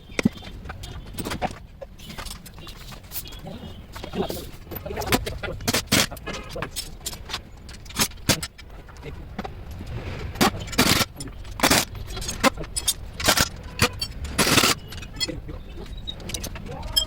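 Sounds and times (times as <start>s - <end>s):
metal clinks and clatter: 0.2s - 17.0s.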